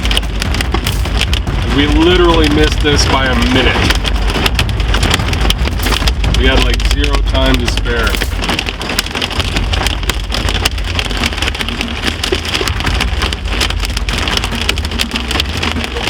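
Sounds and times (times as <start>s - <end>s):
car rumbling on road: 0.0s - 16.0s
hail drumming on car roof: 0.0s - 16.0s.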